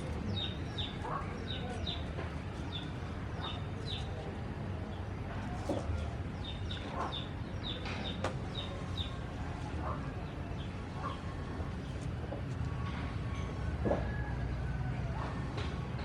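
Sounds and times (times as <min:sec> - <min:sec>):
small birds chirping: 0:00.0 - 0:12.1.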